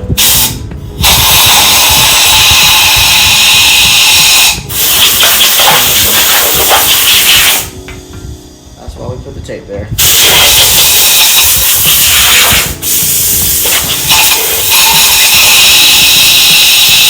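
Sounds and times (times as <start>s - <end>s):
compressed air blow gun hissing: 0.2s - 7.8s, 10.0s - 17.0s.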